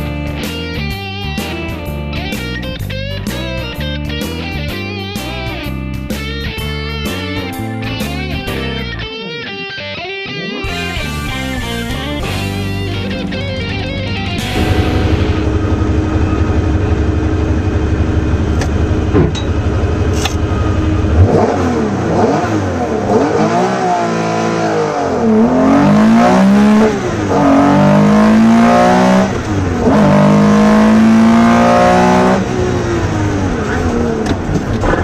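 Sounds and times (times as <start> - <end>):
car engine revving: 10.4 - 35.0.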